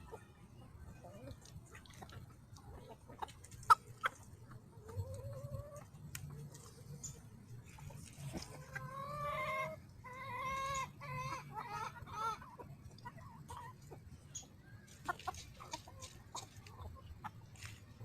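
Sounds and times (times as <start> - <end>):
chicken whining calls: 8.6 - 13.8.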